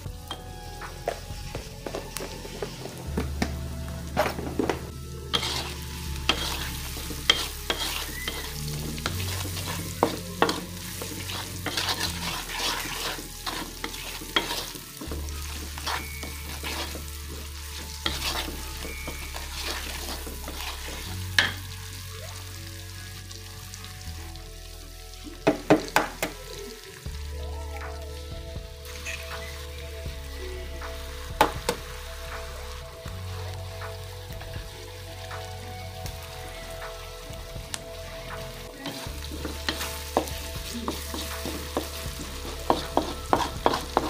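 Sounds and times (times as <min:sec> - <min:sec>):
onions sizzling in hot oil: 0:00.0 - 0:44.0
spatula knocking and scraping wok: 0:00.3 - 0:21.6, 0:38.8 - 0:44.0.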